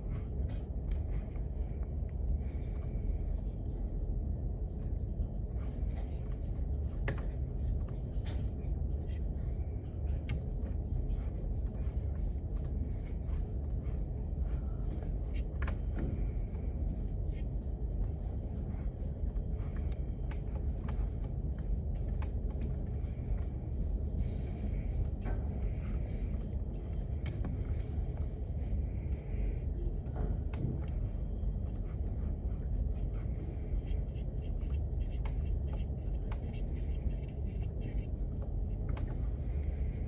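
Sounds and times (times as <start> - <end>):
small clicks and taps: 5.9 - 8.7, 10.2 - 10.8.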